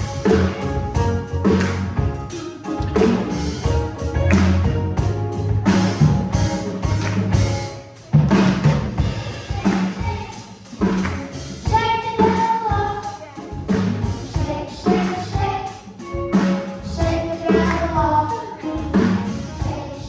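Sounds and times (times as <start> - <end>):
drum kit beating rhythm: 0.0 - 20.0
children's choir singing: 14.1 - 20.0.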